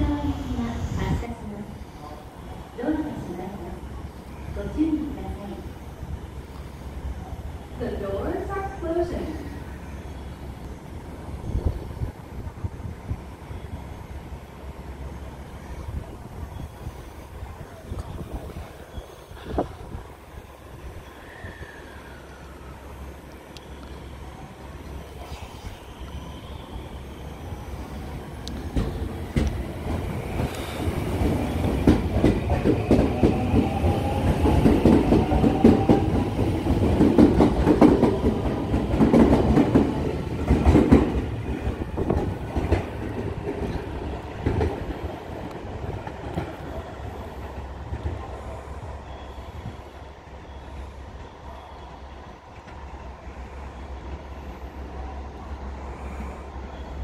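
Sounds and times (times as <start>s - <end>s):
train wheels clacking over joints: 28.4s - 46.6s.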